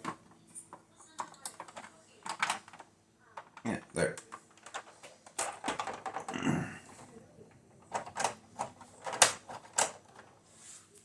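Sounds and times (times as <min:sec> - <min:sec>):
plastic toy parts clicking: 0:01.2 - 0:06.3, 0:07.9 - 0:10.3.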